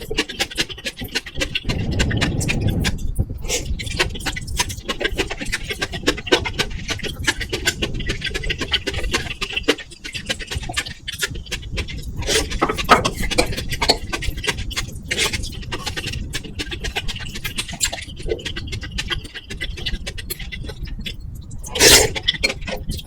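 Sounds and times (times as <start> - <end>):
chewing: 0.0 - 23.0
microphone rumble: 1.5 - 4.8.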